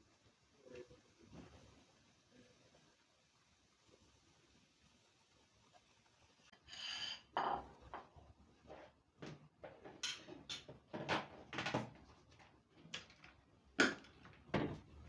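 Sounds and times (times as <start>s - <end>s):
dishes knocking and clattering: 6.6s - 15.0s.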